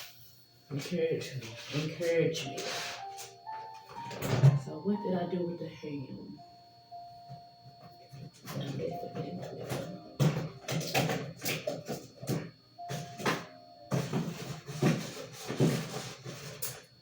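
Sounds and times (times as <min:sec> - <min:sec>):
rustling and clattering of items: 0:00.8 - 0:04.6, 0:07.7 - 0:16.9.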